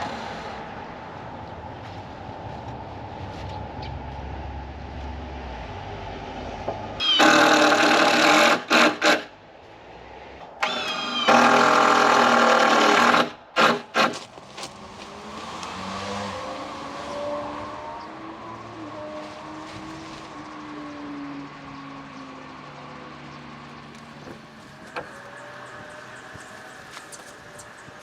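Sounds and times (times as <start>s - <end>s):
loud motor-driven tool running: 7.0s - 9.3s, 10.6s - 28.0s.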